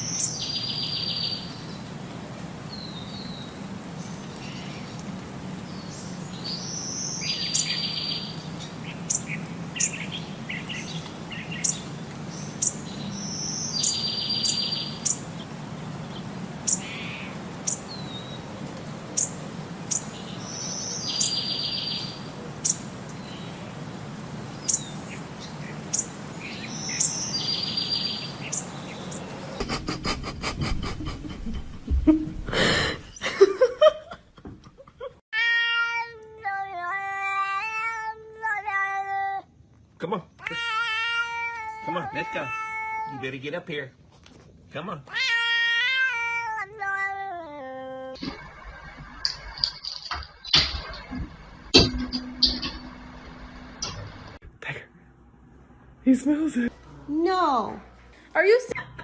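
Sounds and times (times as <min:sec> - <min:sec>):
bird singing whistle and trill: 0:12.6 - 0:15.2, 0:19.2 - 0:23.3, 0:25.9 - 0:29.2, 0:51.8 - 0:54.1
sharp high chirps: 0:48.2 - 0:54.4
loud knocks: 0:50.1 - 0:54.4
steady low hum: 0:50.5 - 0:54.4.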